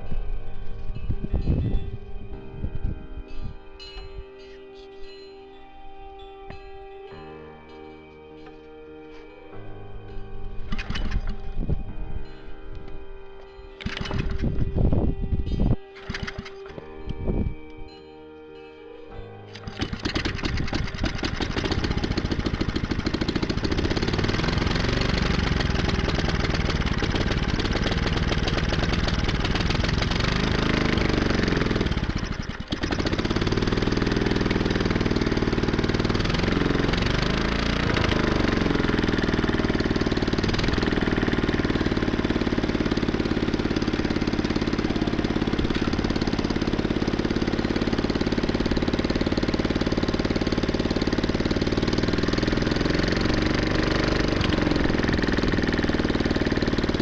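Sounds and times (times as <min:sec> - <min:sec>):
small air-cooled engine running: 0:10.4 - 0:12.0, 0:13.8 - 0:18.1, 0:19.1 - 0:57.0.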